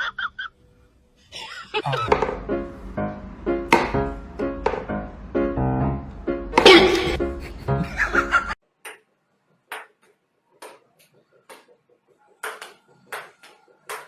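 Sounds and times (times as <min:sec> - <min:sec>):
music: 0:01.9 - 0:08.6.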